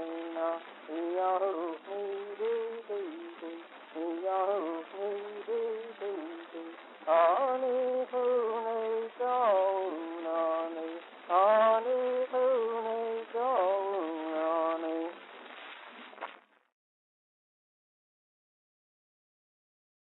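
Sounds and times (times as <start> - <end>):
high voice singing wordless melody: 0.0 - 15.3.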